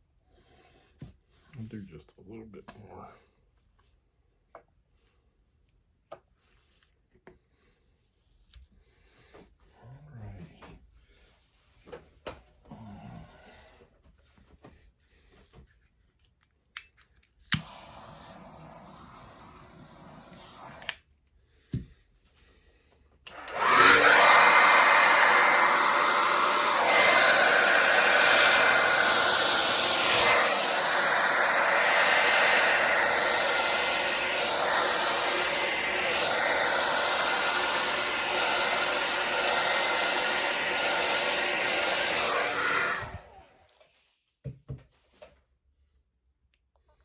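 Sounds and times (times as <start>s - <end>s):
hair dryer blowing: 17.5s - 21.0s, 23.3s - 43.8s.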